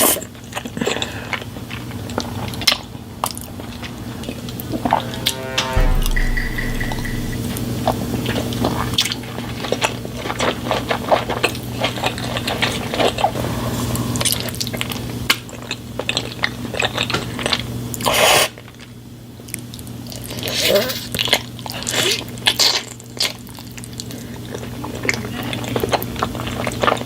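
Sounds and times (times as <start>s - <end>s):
steady low hum: 4.1s - 7.9s
short loud noisy burst: 4.6s - 7.8s.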